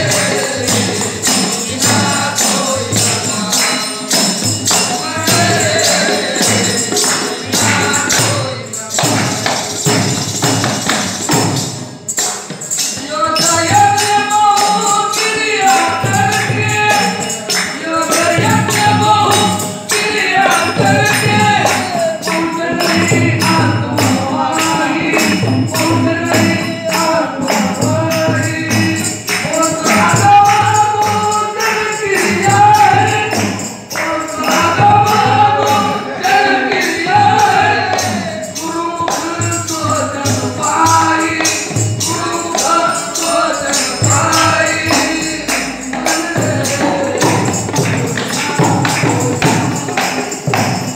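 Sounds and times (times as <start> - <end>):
jingling percussion beat: 0.0 - 50.9.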